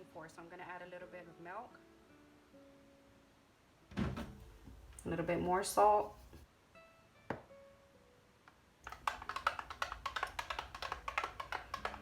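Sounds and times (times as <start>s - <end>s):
utensil clicking against container: 8.8s - 12.0s
utensil stirring thick sauce: 8.8s - 12.0s.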